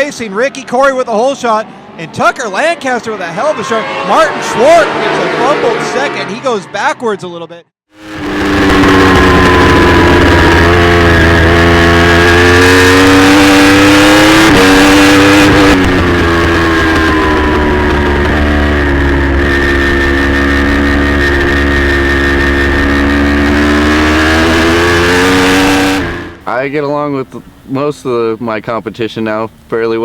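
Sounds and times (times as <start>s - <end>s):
motorcycle engine revving high: 2.2s - 6.7s, 7.9s - 26.6s.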